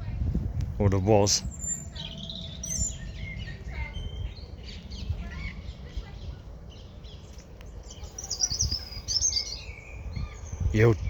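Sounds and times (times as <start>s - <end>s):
low outdoor rumble: 0.0s - 11.0s
small birds chirping: 0.8s - 11.0s.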